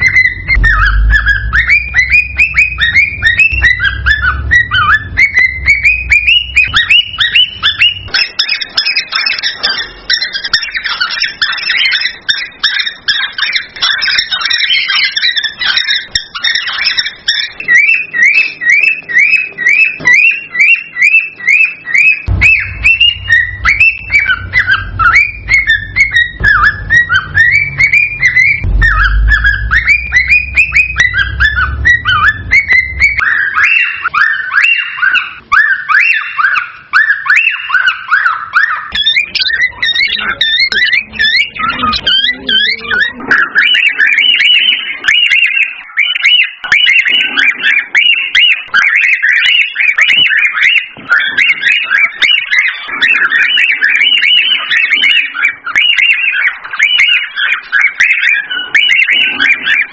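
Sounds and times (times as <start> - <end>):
low rumble: 0.0 - 8.1, 22.3 - 34.1
cockatiel chirping whistles: 0.0 - 59.9.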